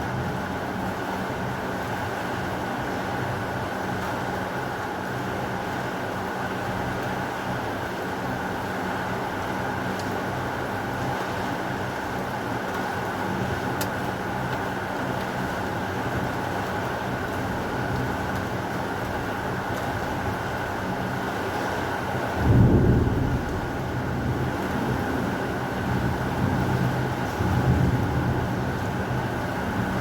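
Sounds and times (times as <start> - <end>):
heavy rain: 0.0 - 30.0
thunder rumble: 17.5 - 30.0.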